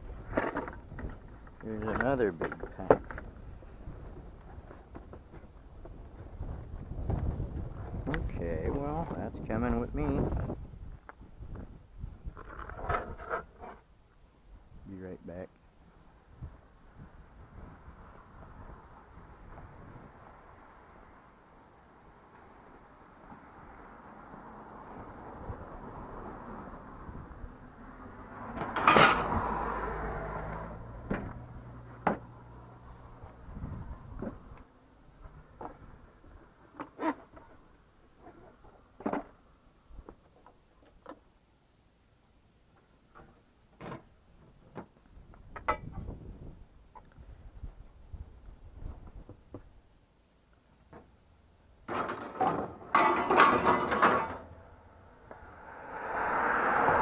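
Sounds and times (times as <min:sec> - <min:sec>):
vehicle approaching on road: 0:16.8 - 0:36.8, 0:53.3 - 0:57.0.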